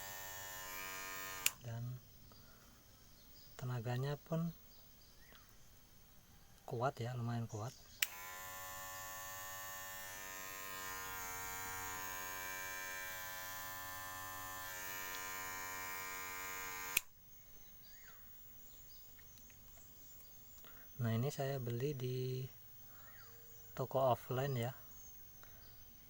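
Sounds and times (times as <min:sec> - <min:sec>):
hair clipper motor hum: 0:00.0 - 0:01.6, 0:08.0 - 0:17.1.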